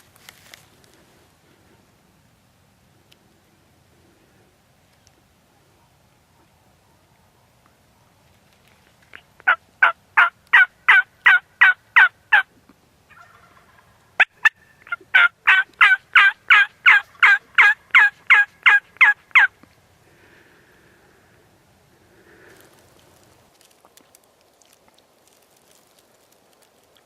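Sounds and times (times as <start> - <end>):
turkey call yelps: 9.4 - 12.5, 13.1 - 19.5.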